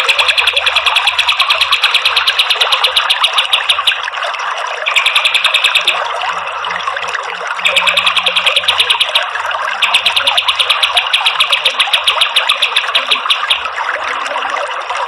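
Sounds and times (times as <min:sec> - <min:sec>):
bird singing fast trills: 0:04.9 - 0:06.0, 0:07.6 - 0:09.2.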